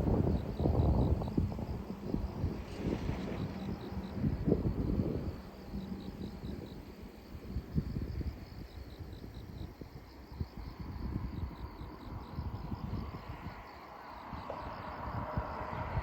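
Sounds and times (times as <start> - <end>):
insects chirping: 0.0 - 16.0
wind buffeting microphone: 0.0 - 16.0.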